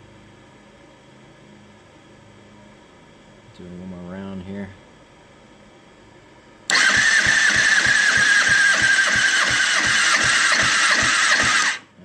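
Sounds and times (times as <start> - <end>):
engine starter cranking: 6.7 - 11.9.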